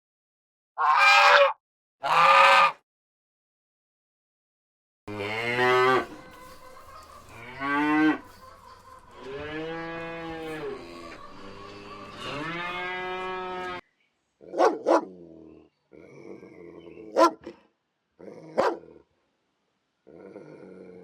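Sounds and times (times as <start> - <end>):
cattle mooing: 5.1 - 13.8
dog barks: 14.4 - 15.2, 17.0 - 17.6, 18.3 - 19.0.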